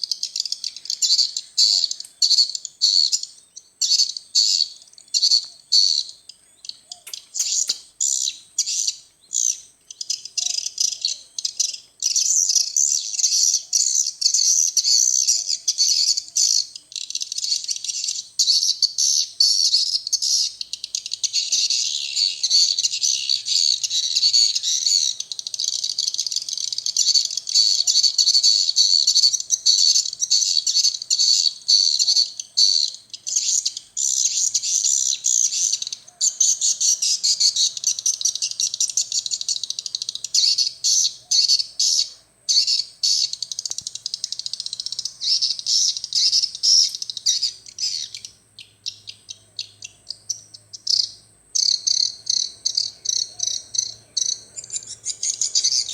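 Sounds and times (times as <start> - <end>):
swiftlets twittering and chirping: 7.0 - 8.8, 50.3 - 55.9.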